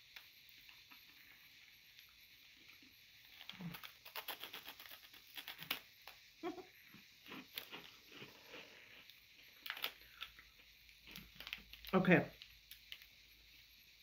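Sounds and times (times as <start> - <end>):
crunching crisp snack: 2.8 - 6.2, 7.2 - 13.1.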